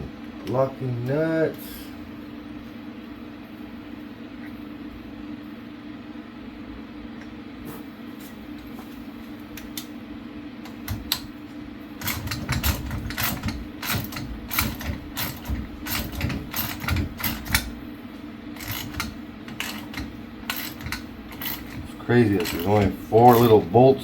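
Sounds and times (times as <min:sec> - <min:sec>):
steady low hum: 0:00.0 - 0:24.0
ratchet wrench clicking: 0:18.6 - 0:21.8, 0:22.4 - 0:23.5.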